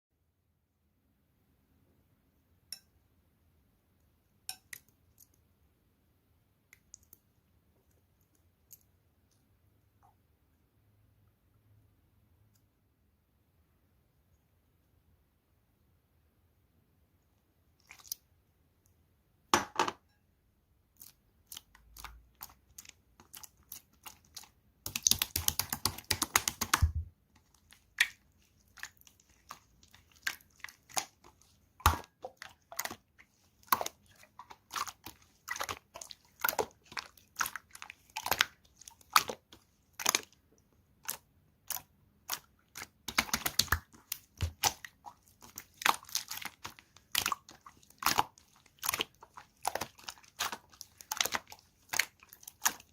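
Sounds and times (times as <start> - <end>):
slime squished by hand: 20.9 - 40.4, 41.0 - 52.9
rapid crackling of slime: 20.9 - 52.9.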